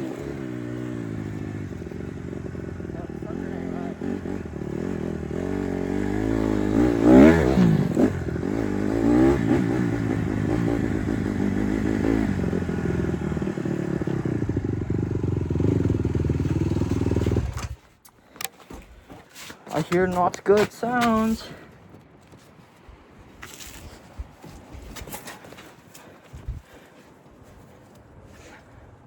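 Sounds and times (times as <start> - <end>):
dirt bike engine revving: 0.0 - 17.8.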